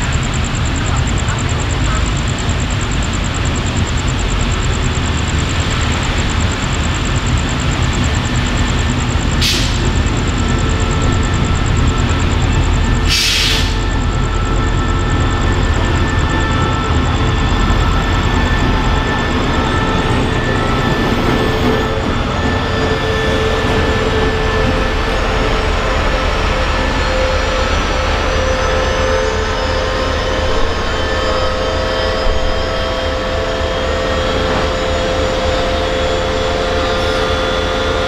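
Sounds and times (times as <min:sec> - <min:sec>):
locomotive engine and wheels rumbling: 0:00.0 - 0:38.0
short air hisses: 0:09.4 - 0:09.8, 0:13.1 - 0:13.8.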